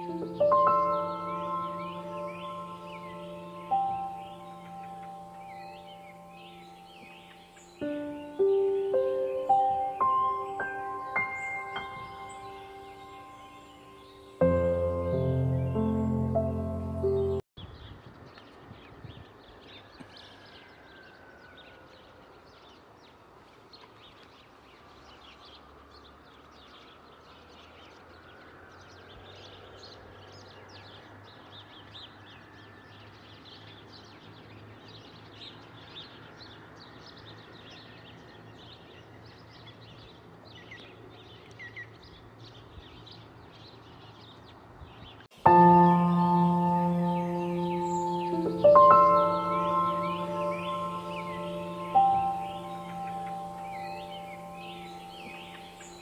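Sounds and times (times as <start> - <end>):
small birds chirping: 0.0 - 21.1, 32.9 - 56.0.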